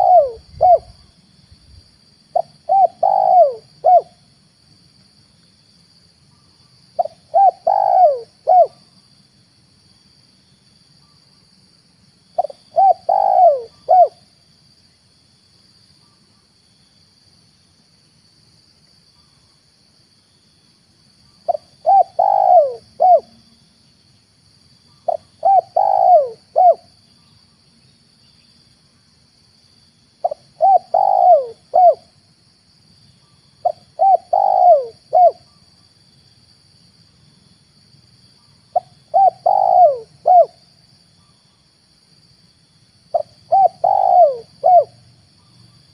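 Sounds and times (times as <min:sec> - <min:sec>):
dove cooing: 0:00.0 - 0:01.0, 0:02.3 - 0:04.2, 0:07.0 - 0:08.8, 0:12.4 - 0:14.2, 0:21.5 - 0:23.3, 0:25.1 - 0:26.9, 0:30.2 - 0:32.1, 0:33.6 - 0:35.4, 0:38.7 - 0:40.6, 0:43.1 - 0:45.0
faint high-pitched hiss: 0:00.0 - 0:45.9.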